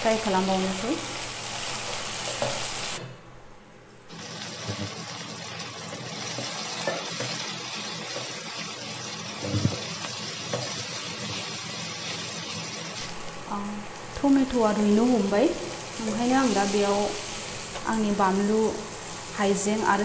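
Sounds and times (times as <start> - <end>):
vegetables sizzling in oil: 0.0 - 3.4, 4.1 - 20.0.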